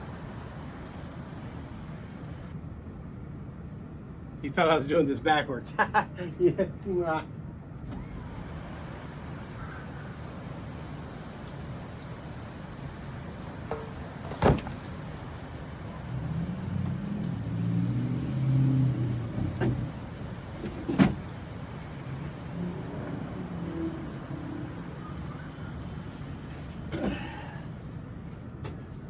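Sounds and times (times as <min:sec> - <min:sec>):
heavy rain: 0:00.0 - 0:02.6, 0:07.9 - 0:28.6.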